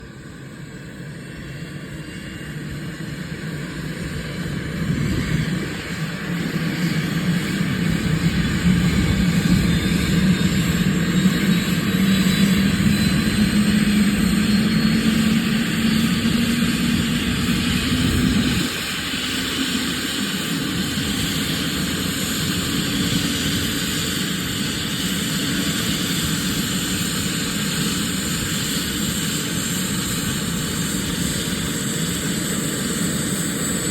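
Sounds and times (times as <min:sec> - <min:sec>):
helicopter engine spooling up: 0:00.0 - 0:33.9.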